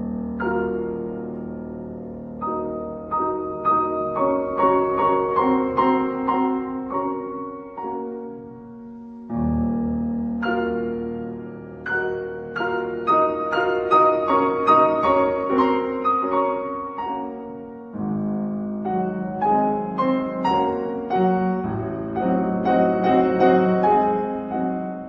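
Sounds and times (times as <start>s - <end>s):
slow gentle piano melody: 0.0s - 25.0s.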